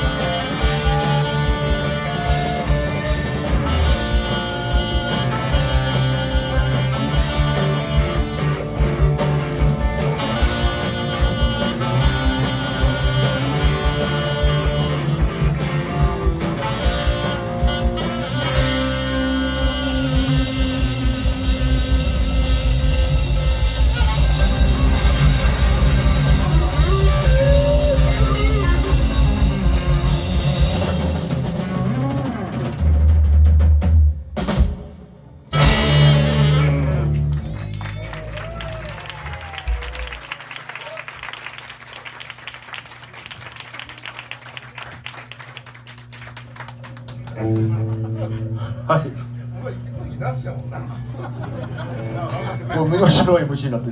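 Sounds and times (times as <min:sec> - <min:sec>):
bass line: 0:00.0 - 0:34.6, 0:35.4 - 0:40.3
drum beat: 0:00.0 - 0:34.9
guitar: 0:00.0 - 0:40.4, 0:43.3 - 0:53.9
rock band playing: 0:00.0 - 0:53.9.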